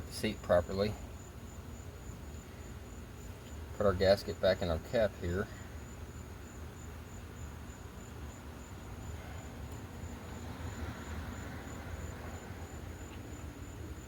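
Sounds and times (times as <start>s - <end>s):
cricket chirping: 0.1s - 14.0s.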